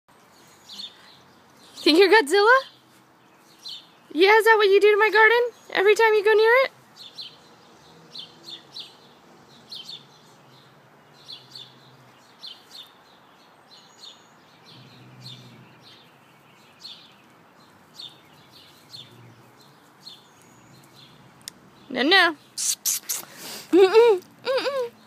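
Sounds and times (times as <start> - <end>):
small bird chirping: 7.0 - 25.0.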